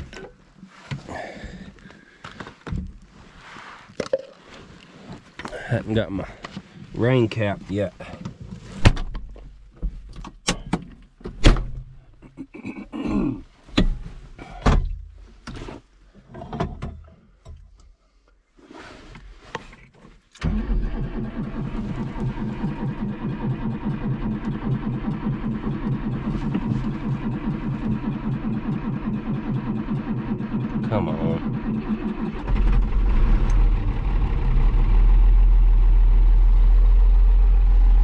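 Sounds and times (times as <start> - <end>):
knocks and clunks: 0.0 - 3.0, 8.0 - 12.2, 13.6 - 17.7
tractor diesel engine: 20.4 - 38.0.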